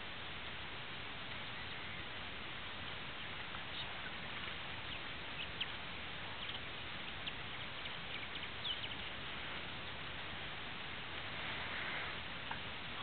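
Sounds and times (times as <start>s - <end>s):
steady hiss: 0.0s - 13.0s
high bird chirps: 7.2s - 9.2s.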